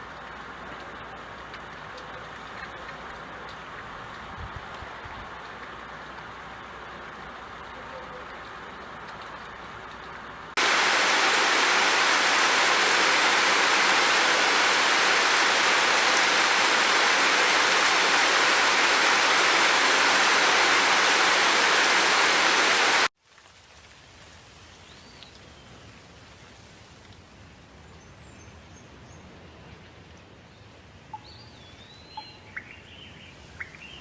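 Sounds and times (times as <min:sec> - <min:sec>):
heavy rain: 0:08.6 - 0:23.1
soft ambient hiss: 0:10.4 - 0:23.1.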